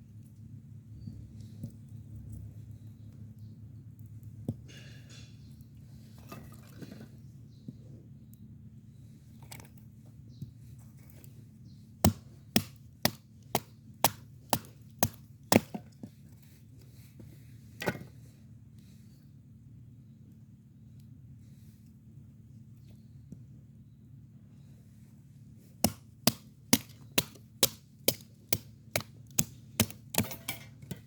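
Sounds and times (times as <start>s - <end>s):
wood being chopped: 12.0s - 16.0s, 25.8s - 31.0s.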